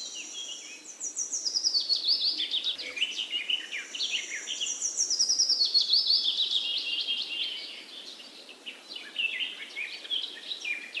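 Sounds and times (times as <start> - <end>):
small birds chirping and trilling: 0.0 - 11.0.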